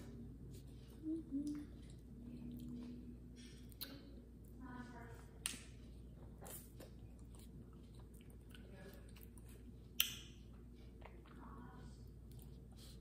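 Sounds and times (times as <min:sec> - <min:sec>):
person chewing: 0:00.5 - 0:04.2, 0:05.8 - 0:11.4.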